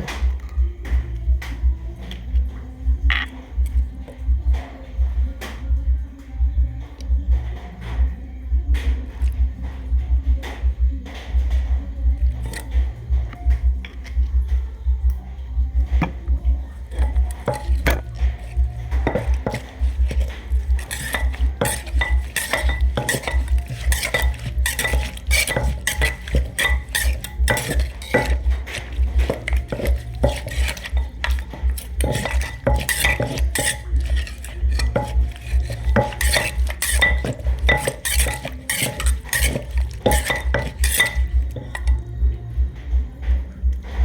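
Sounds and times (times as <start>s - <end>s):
pestle pounding in mortar: 12.2s - 12.9s, 15.8s - 42.1s
spoon clinking against bowl: 16.9s - 42.0s.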